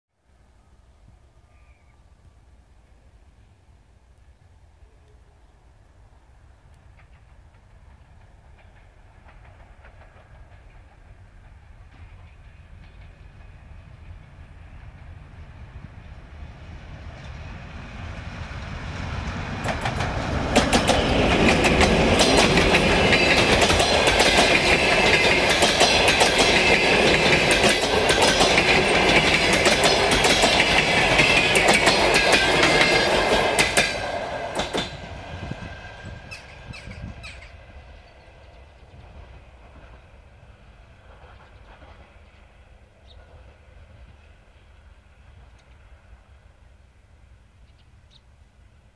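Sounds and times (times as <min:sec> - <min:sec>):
diesel locomotive passing: 0:02.4 - 0:48.9
wheels clattering over rail joints: 0:19.6 - 0:35.0.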